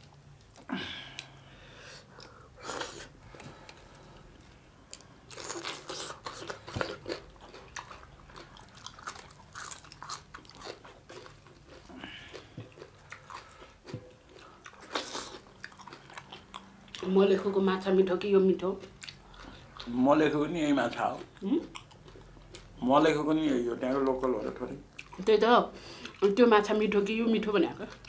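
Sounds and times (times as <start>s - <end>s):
crunching and chewing fried fish: 3.3s - 17.2s, 18.7s - 20.0s, 20.7s - 22.8s.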